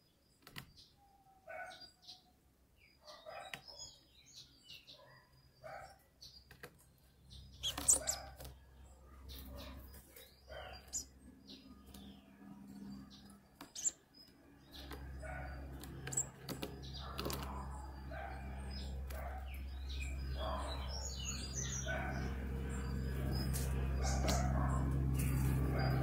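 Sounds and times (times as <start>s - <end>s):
low steady hum: 6.9s - 26.0s
high bird chirps: 7.3s - 8.5s, 9.2s - 26.0s
wing flutters: 7.6s - 8.6s, 9.2s - 19.5s, 20.4s - 26.0s.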